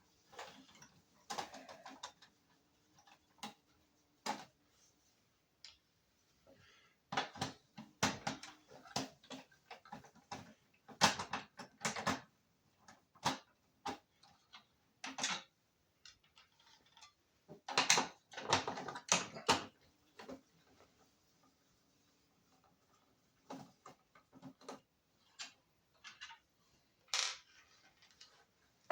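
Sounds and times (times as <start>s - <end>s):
clatter of small plastic and metal parts: 0.2s - 4.5s, 7.1s - 20.4s, 22.9s - 26.5s, 27.1s - 28.9s.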